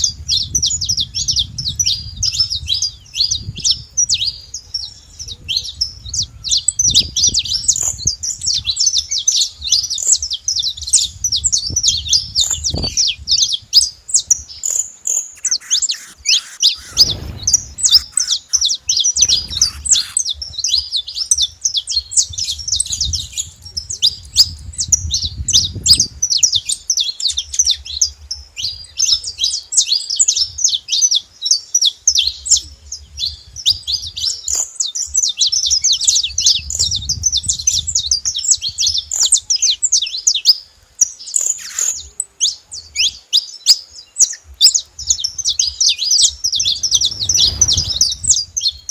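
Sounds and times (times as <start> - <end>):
finch singing chirps and trills: 15.2 - 23.4, 29.8 - 48.9.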